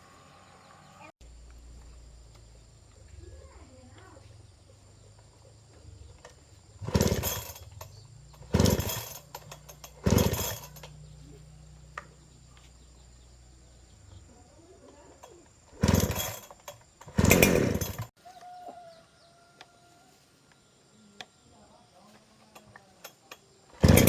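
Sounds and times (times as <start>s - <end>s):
chainsaw idling and revving: 3.8s - 18.2s, 22.6s - 24.0s.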